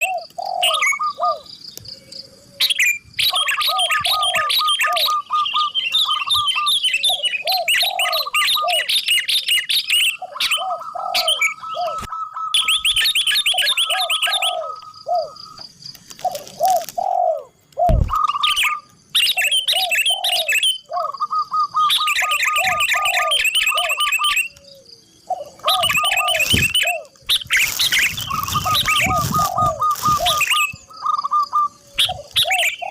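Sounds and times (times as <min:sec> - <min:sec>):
dove cooing: 0:00.0 - 0:15.6, 0:16.2 - 0:32.9
songbirds chirping and trilling: 0:00.0 - 0:32.9.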